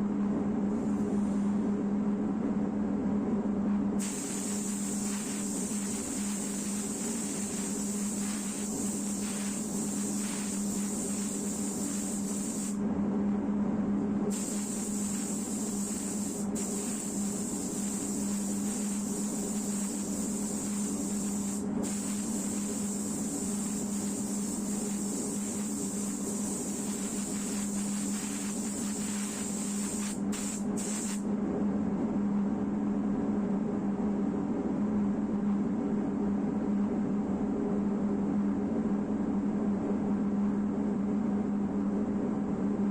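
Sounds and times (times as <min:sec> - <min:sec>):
steady low hum: 0:00.0 - 0:42.9
spray gun hissing: 0:04.0 - 0:12.8, 0:14.3 - 0:31.2.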